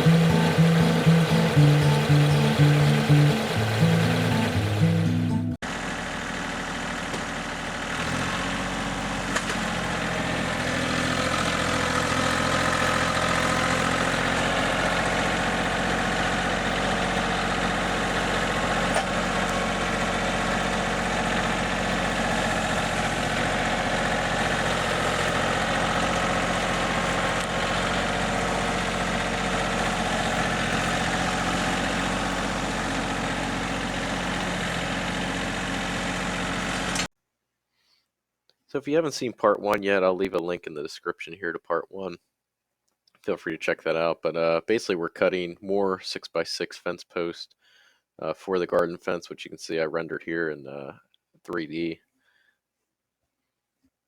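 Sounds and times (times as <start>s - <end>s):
engine idling: 0.0s - 37.1s.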